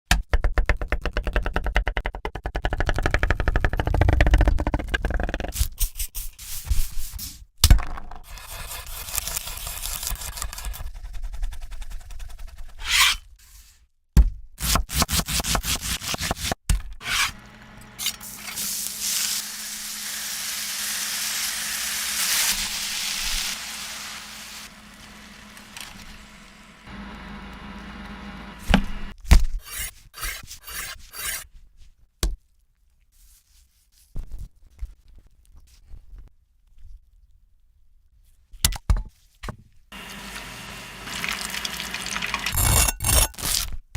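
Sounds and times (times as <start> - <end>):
rubbing and scraping: 8.2 - 13.3, 29.6 - 31.6.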